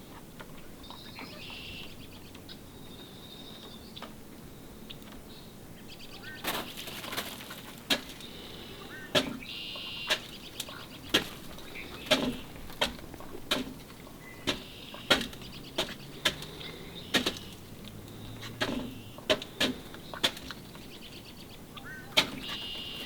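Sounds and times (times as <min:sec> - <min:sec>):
small birds twittering: 0:00.0 - 0:23.0
duck bills tapping a dish: 0:10.0 - 0:17.6, 0:18.5 - 0:20.6.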